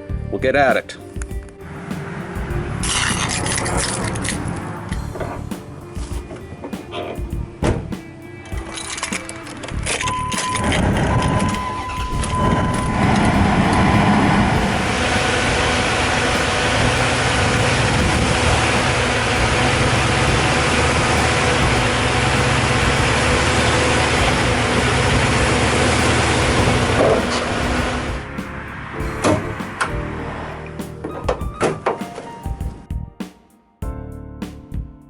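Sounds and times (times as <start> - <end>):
engine running: 1.7 - 6.1, 9.8 - 30.8
high steady tone: 10.0 - 30.7.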